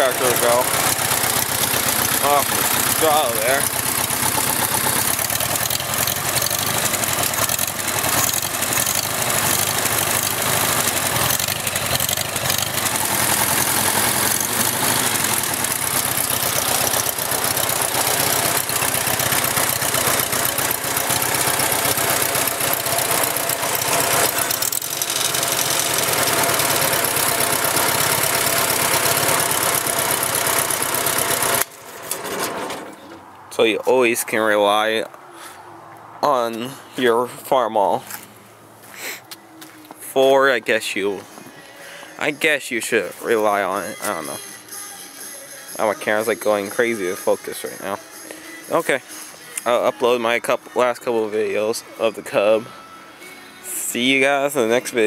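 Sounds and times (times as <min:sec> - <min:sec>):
tractor engine running: 0:00.0 - 0:34.8, 0:45.8 - 0:47.8.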